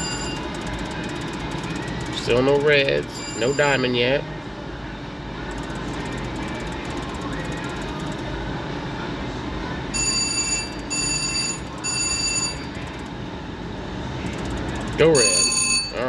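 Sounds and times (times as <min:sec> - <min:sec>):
slot machine bell-like rings: 0:00.0 - 0:04.1, 0:10.0 - 0:12.8, 0:15.1 - 0:16.0
din of slot machines: 0:00.0 - 0:04.4, 0:05.4 - 0:16.0.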